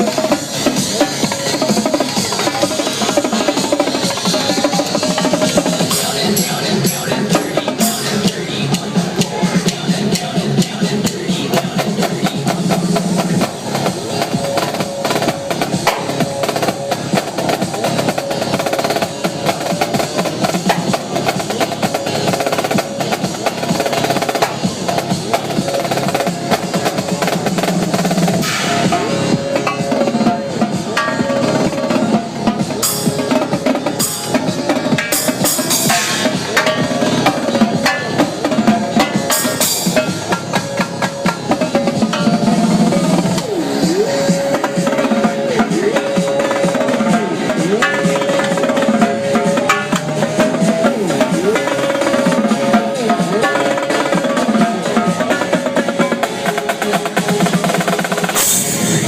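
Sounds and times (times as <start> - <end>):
drum kit snare rolls and bass drum: 0.0 - 59.0
electronic dance track: 0.0 - 59.0
cymbal crashes: 28.2 - 29.9.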